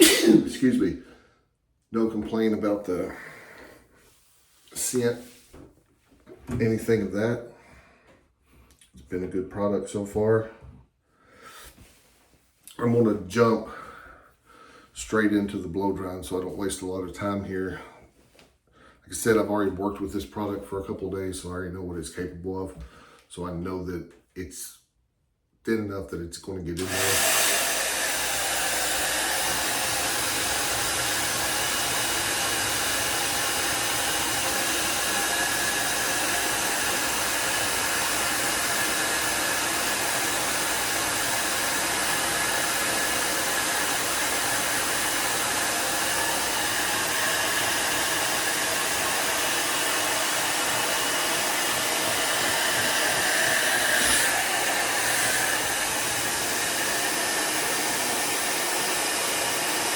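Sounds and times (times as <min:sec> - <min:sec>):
hair dryer blowing: 0:00.0 - 0:00.9, 0:26.8 - 0:59.9.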